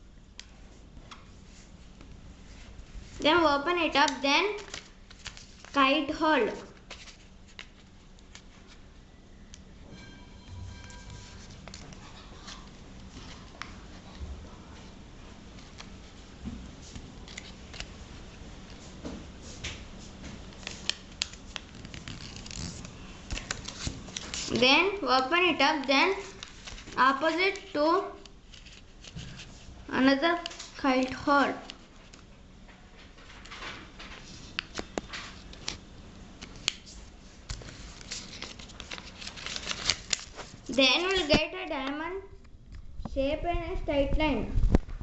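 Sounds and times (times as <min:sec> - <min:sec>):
paper being folded and creased: 0:04.0 - 0:05.9, 0:06.5 - 0:08.8, 0:11.1 - 0:14.2, 0:16.9 - 0:18.0, 0:20.4 - 0:25.2, 0:26.0 - 0:29.7, 0:36.4 - 0:41.4.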